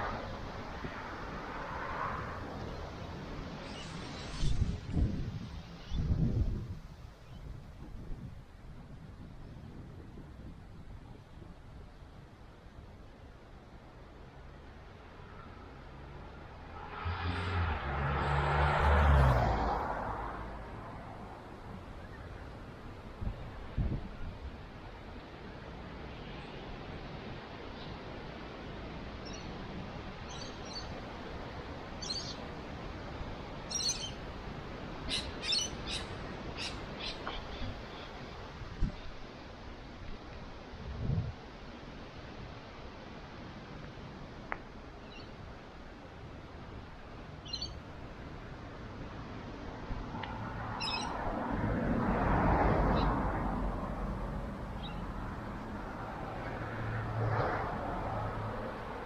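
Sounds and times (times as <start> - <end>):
wind rushing: 0.0 - 7.0, 16.3 - 21.4
steady outdoor rush: 0.0 - 59.0
birds chirping: 35.1 - 38.2, 50.8 - 51.2, 54.8 - 55.1.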